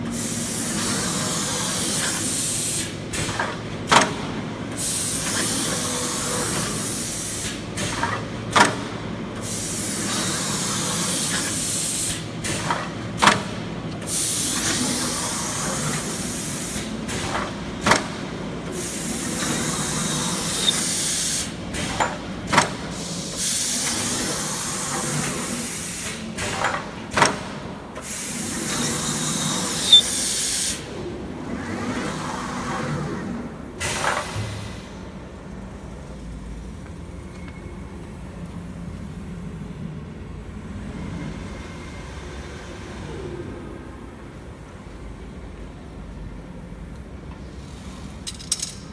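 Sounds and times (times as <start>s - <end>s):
machine clicks and knocks: 7.8s - 9.0s, 17.1s - 22.9s, 26.4s - 27.7s, 48.1s - 48.9s
high hissing metal scrape: 19.5s - 21.4s, 28.8s - 30.7s.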